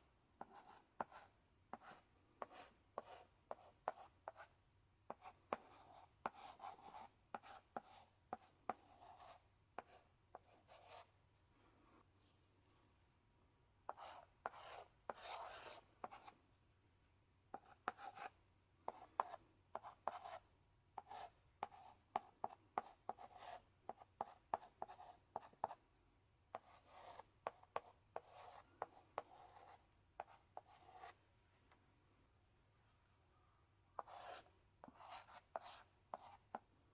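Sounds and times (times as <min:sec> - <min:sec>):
chalk writing on blackboard: 0:00.4 - 0:04.5, 0:05.1 - 0:11.1, 0:13.9 - 0:16.4, 0:17.6 - 0:20.4, 0:21.0 - 0:25.8, 0:26.5 - 0:31.2, 0:34.0 - 0:36.7.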